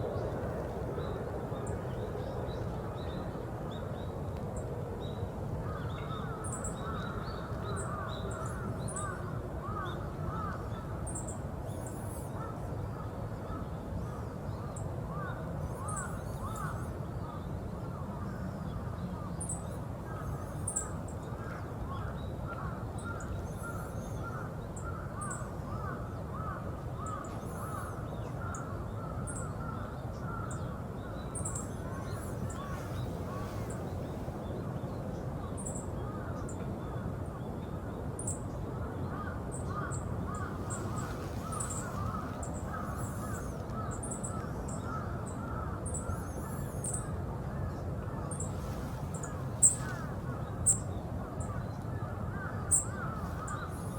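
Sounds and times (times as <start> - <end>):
crows cawing: 39.1 - 46.4.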